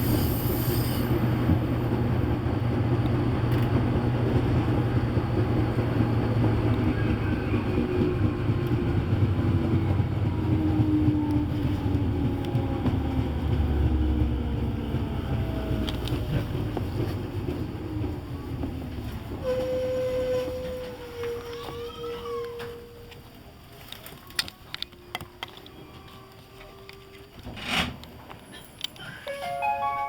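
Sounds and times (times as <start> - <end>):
train wheels rumbling on rails: 0.0 - 29.2.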